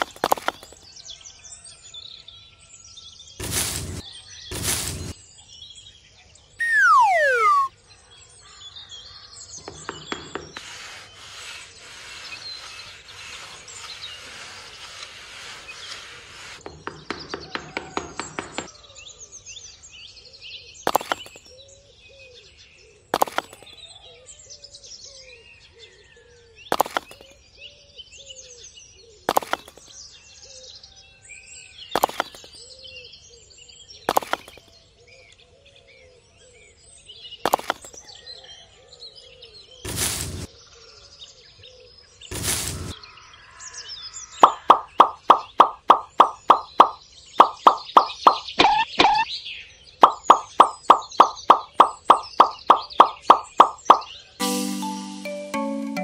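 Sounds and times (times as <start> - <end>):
small birds chirping: 2.6 - 17.5, 18.7 - 30.9, 39.2 - 54.4
hissing noise: 3.4 - 5.2, 39.9 - 40.5, 42.3 - 43.0, 50.0 - 54.1
loud falling whistle: 6.6 - 7.7.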